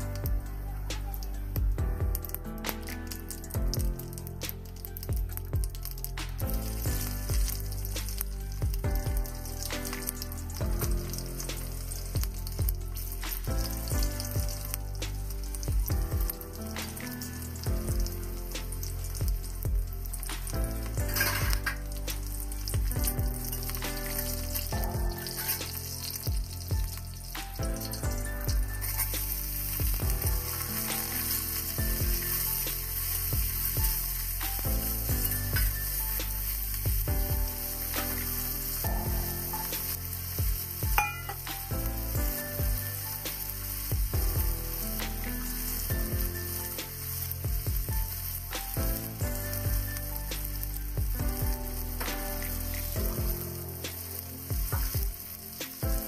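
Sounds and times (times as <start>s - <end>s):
background music with held notes: 0.0s - 56.0s
onions sizzling in hot oil: 0.0s - 56.0s
spatula scraping and tapping pan: 20.1s - 36.5s.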